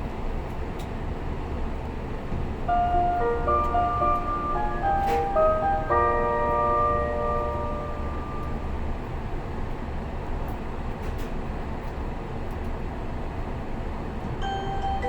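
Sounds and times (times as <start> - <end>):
train carriage rumble and hiss: 0.0 - 15.0
onboard chime: 2.7 - 8.6, 14.4 - 15.0.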